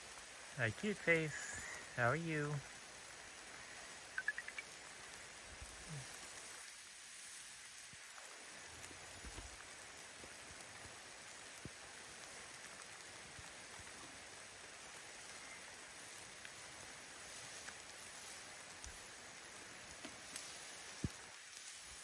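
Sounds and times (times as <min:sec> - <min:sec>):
gentle rain falling: 0:00.0 - 0:22.0
drops ticking: 0:04.1 - 0:04.8.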